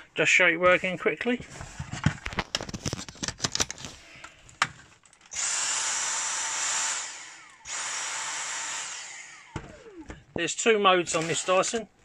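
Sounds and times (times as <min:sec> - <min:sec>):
cordless vacuum motor whining: 0:05.3 - 0:10.3, 0:11.0 - 0:11.9.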